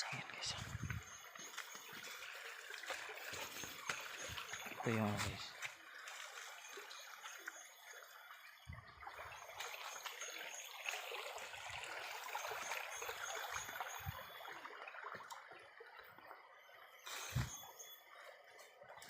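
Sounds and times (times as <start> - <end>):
water trickling in a stream: 0.0 - 19.0.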